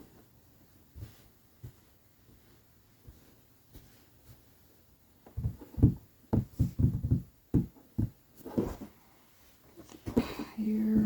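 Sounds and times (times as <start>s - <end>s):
soft thumps and knocks on table: 5.2s - 8.9s.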